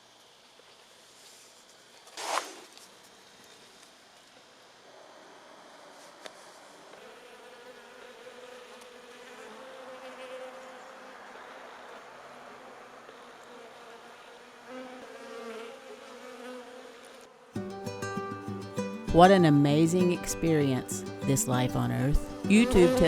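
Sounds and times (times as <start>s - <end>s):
honeybees buzzing: 6.4s - 23.0s.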